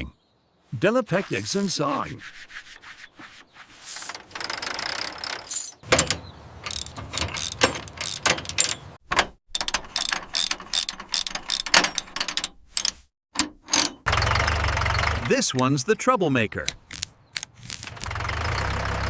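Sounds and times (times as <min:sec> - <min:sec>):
tool scraping: 0:01.1 - 0:09.0
ratchet clicks: 0:04.0 - 0:14.1, 0:16.6 - 0:18.2
metal clanks: 0:04.0 - 0:15.3.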